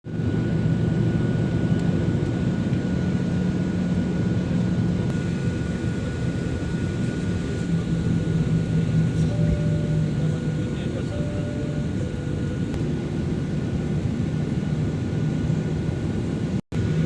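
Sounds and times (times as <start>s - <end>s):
airliner engines rumbling: 0.1s - 17.0s
thin high tone: 9.1s - 12.7s.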